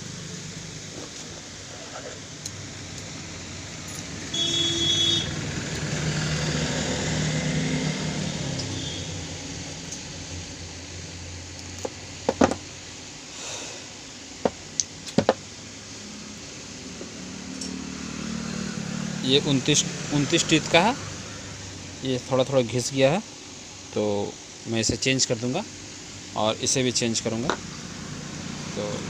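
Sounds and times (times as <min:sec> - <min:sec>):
road traffic passing: 0:00.0 - 0:24.6, 0:25.6 - 0:29.0
car horn: 0:04.3 - 0:05.4, 0:08.7 - 0:09.2.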